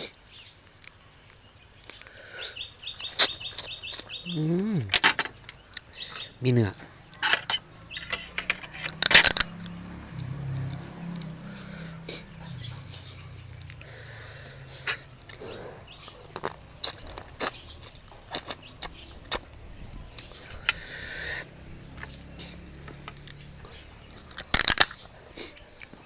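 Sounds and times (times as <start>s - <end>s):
sucking slurps: 10.1s - 19.4s, 20.2s - 21.6s
crab shell cracking and clicking: 24.2s - 25.1s.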